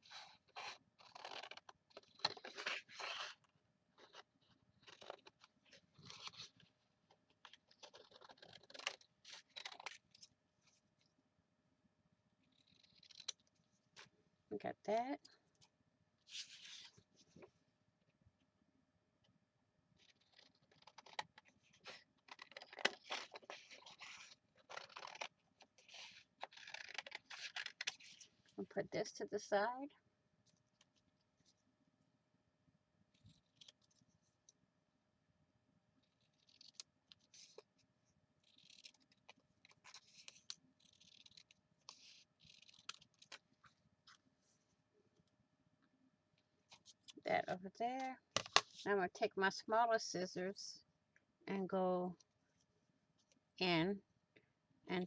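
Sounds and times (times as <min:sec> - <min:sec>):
paper rustling and crinkling: 0:20.0 - 0:28.4.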